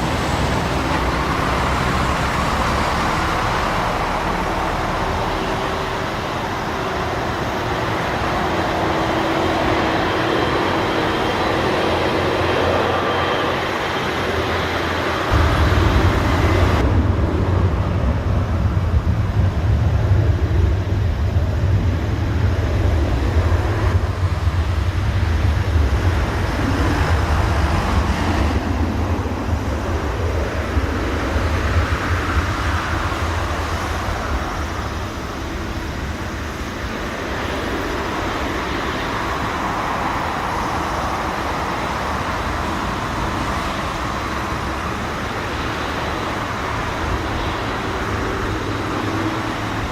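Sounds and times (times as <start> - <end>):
heavy low rumble: 0.0 - 38.4
jet engines rushing: 0.0 - 49.9.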